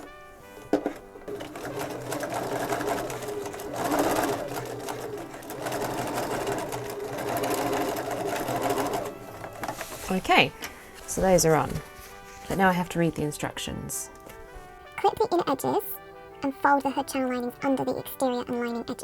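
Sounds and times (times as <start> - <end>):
sewing machine stitching: 0.0 - 10.5.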